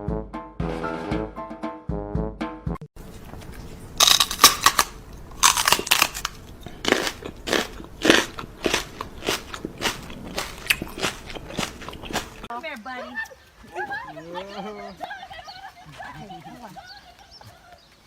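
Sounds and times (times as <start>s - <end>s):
brass music: 0.0s - 2.7s
crunchy chewing: 3.0s - 12.5s.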